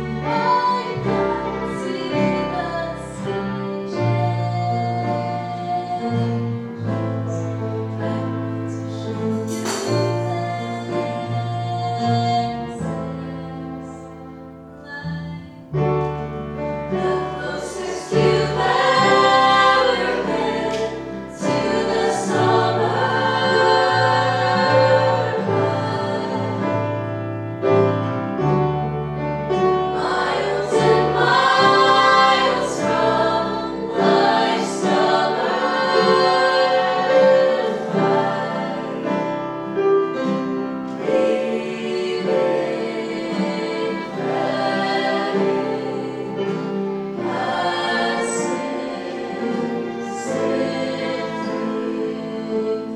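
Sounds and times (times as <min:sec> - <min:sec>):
voices singing in harmony: 0:00.0 - 0:28.1, 0:29.5 - 0:52.9
instrumental accompaniment: 0:00.0 - 0:52.9.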